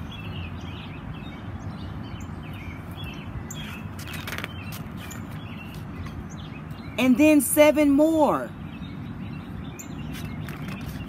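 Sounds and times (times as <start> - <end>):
small birds chirping: 0.0 - 11.0
book page rustling: 4.0 - 5.1.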